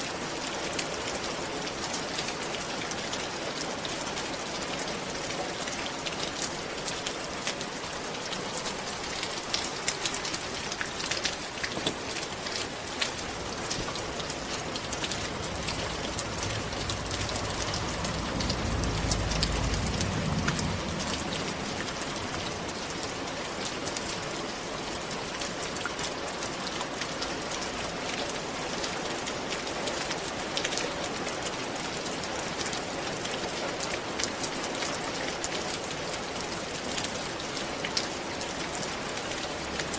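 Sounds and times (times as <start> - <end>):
rain falling on a roof: 0.0 - 39.9
low rumble: 14.0 - 23.2.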